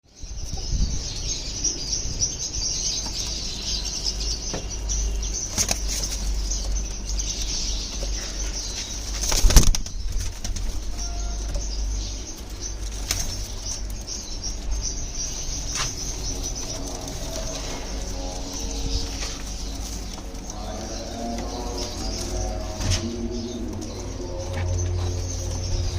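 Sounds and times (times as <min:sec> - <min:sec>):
pigeons flapping wings: 0:09.2 - 0:10.8
pigeons cooing: 0:14.8 - 0:25.9.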